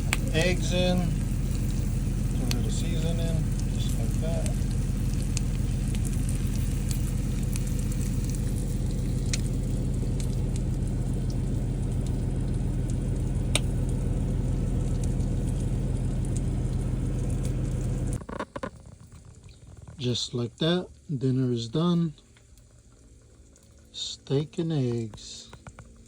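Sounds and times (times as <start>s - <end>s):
food sizzling in a pan: 0.0s - 18.2s
low hum: 0.0s - 26.0s.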